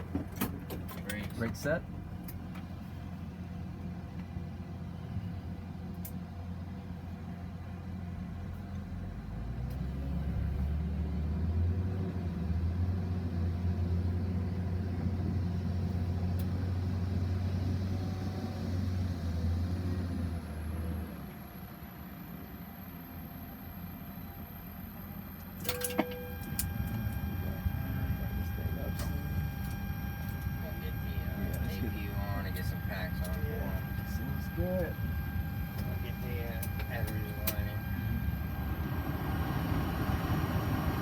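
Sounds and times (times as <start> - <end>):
low mechanical rumble: 0.0 - 41.0
faint high whine: 19.4 - 41.0
low hum with faint hiss: 20.7 - 39.8.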